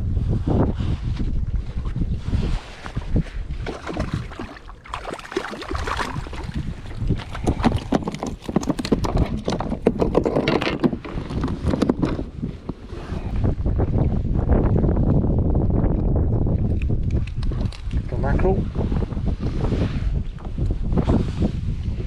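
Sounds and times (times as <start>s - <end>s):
wind rumbling on microphone: 0.0s - 22.0s
knocks and clicks on kayak: 3.6s - 12.8s.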